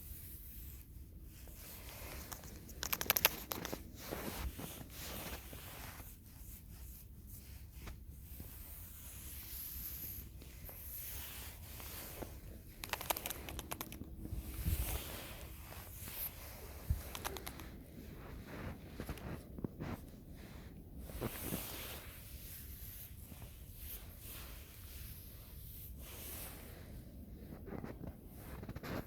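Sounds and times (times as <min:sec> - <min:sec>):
rustling crinkling handling: 0:00.6 - 0:29.0
rapid crackling clicks: 0:02.2 - 0:03.8, 0:12.7 - 0:14.1, 0:17.0 - 0:17.7.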